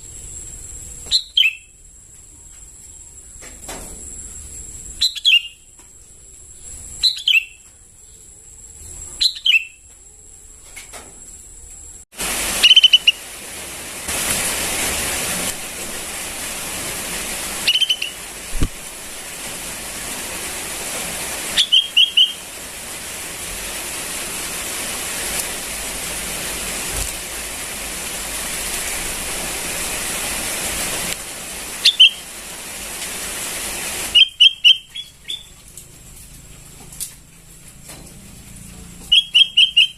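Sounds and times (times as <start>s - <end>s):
steady hiss: 0.0s - 9.2s, 9.8s - 39.0s
bird chirping: 1.1s - 1.7s, 5.0s - 5.7s, 6.6s - 9.8s, 12.6s - 13.2s, 17.6s - 18.2s, 21.5s - 22.4s, 31.8s - 32.2s, 34.2s - 35.6s, 39.1s - 39.9s.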